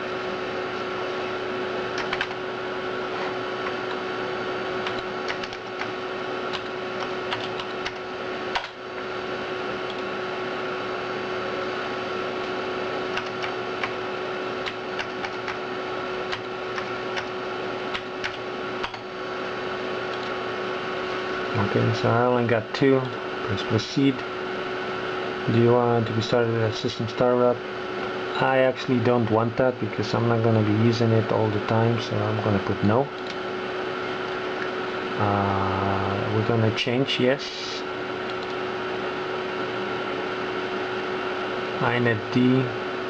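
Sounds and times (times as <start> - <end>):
computer hard drive humming: 0.0 - 43.0.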